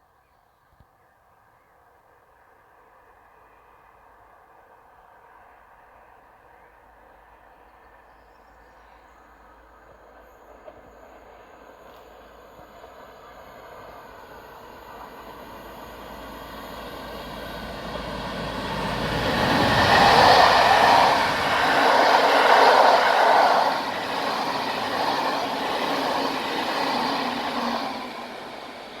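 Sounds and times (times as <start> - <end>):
train wheels rumbling on rails: 9.2 - 29.0.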